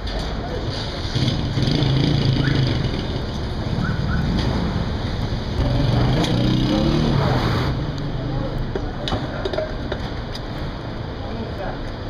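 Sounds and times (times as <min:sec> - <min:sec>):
motorcycle engine revving: 0:01.0 - 0:08.6.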